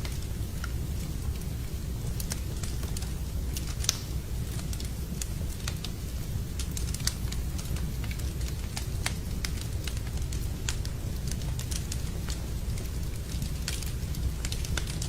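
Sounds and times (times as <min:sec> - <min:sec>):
low rumble of fire: 0:00.0 - 0:15.0
wood fire crackling and popping: 0:00.0 - 0:15.0.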